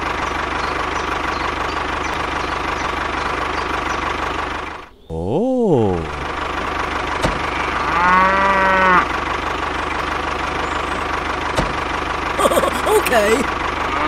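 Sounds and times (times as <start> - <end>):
tractor engine idling: 0.0 - 4.9, 5.9 - 7.6, 9.0 - 13.9
cow mooing: 7.4 - 9.1.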